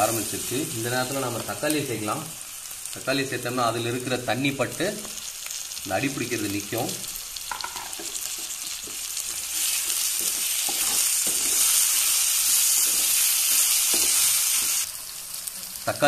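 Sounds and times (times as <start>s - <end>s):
tomatoes sizzling in oil: 0.0s - 16.0s
wooden spatula scraping pan: 7.9s - 11.9s.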